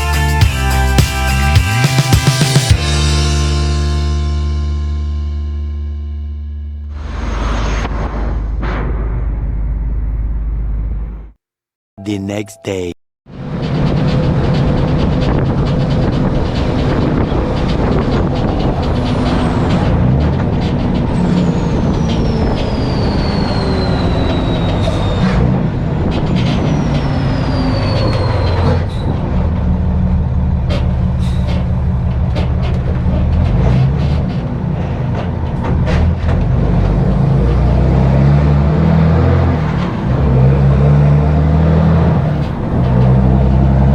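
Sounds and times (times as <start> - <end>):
truck engine running: 13.4 - 43.9
long falling whistles: 21.5 - 25.3.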